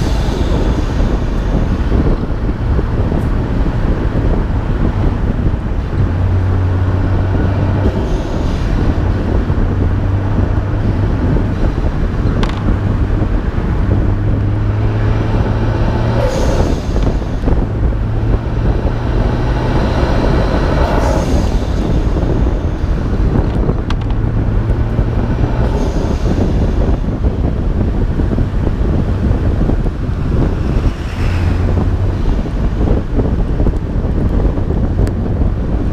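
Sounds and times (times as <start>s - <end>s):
car engine running: 0.0s - 35.9s
wet road noise: 0.0s - 35.9s
wind rumble: 0.0s - 35.9s.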